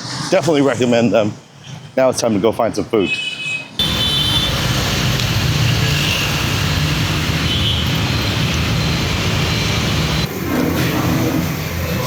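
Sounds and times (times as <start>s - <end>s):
rumble of passing vehicles: 3.8s - 12.0s.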